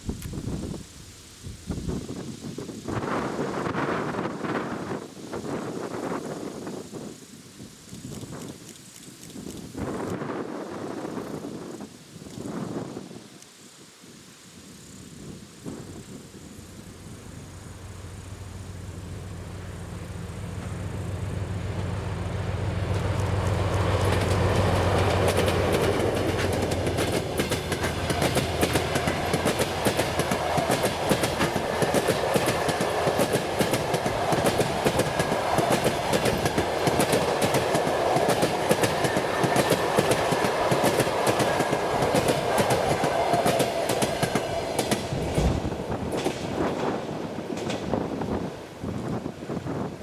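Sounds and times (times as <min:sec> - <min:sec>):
diesel locomotive engine drone: 0:15.1 - 0:50.0
wheels clicking over rail joints: 0:15.6 - 0:49.3
train coaches rumbling: 0:15.6 - 0:50.0.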